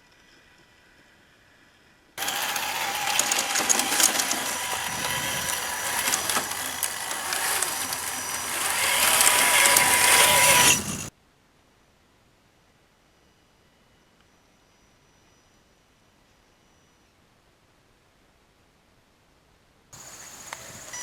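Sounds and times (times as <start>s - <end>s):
electric motor and gears whirring: 2.2s - 11.1s.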